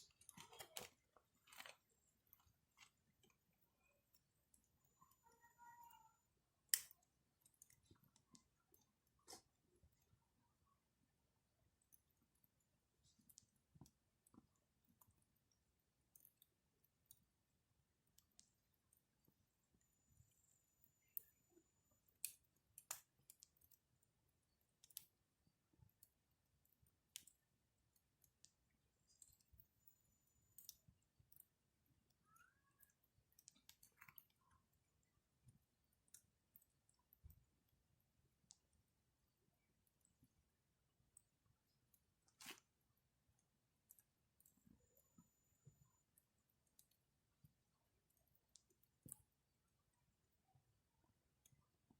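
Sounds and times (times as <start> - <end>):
campfire crackling: 6.6 - 9.6, 22.0 - 29.7, 30.5 - 31.6, 33.0 - 38.8.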